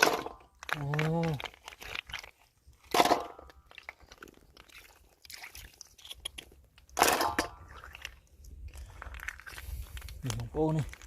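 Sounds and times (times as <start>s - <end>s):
snail shells clicking: 0.4s - 2.4s.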